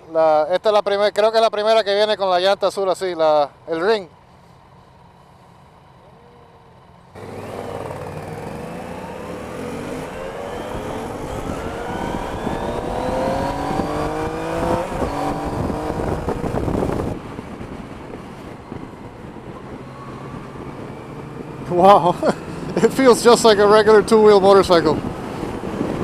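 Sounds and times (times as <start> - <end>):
road and wind noise: 0.0 - 26.0
motorcycle engine accelerating: 7.1 - 26.0.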